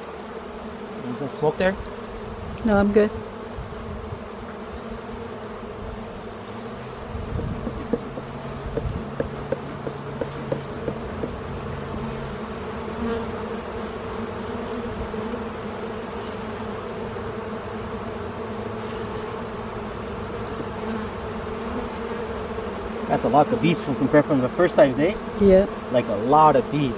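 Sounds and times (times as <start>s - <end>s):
bees buzzing: 0.0s - 26.9s
light clicks and knocks: 7.6s - 11.4s.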